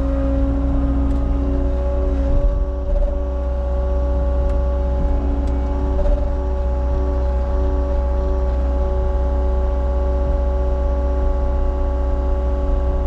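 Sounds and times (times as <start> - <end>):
hydraulic whine: 0.0 - 9.5
diesel engine rumbling under load: 0.0 - 13.0.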